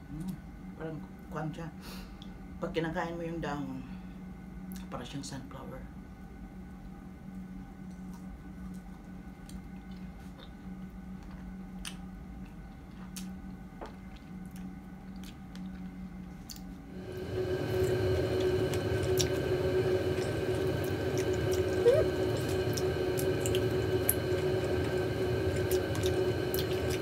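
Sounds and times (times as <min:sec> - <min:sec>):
steady hum with hiss: 0:00.0 - 0:27.0
wet chewing of strawberries: 0:09.4 - 0:16.8.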